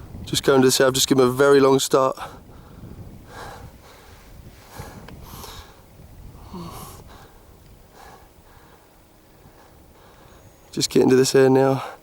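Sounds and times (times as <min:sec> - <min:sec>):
close breathing: 0:02.2 - 0:10.7, 0:11.7 - 0:12.0.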